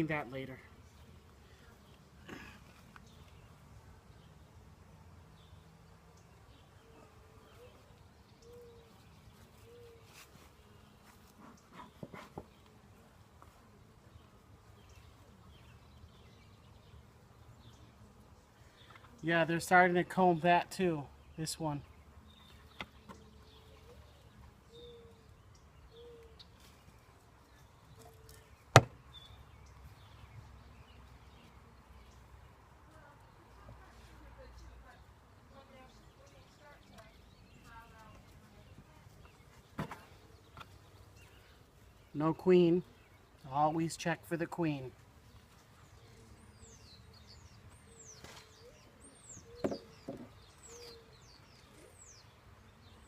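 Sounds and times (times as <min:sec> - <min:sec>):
honeybees buzzing: 0:00.0 - 0:53.0
sharp knock: 0:28.8 - 0:29.0
small bird chirping: 0:45.4 - 0:53.0.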